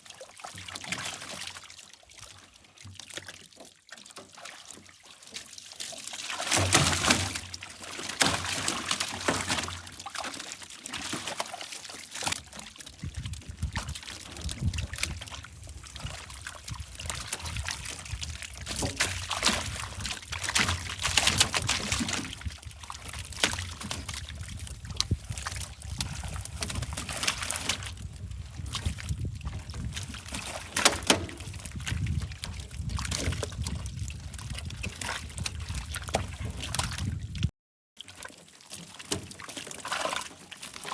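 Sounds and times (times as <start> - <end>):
water splashing and trickling: 0.0 - 40.9.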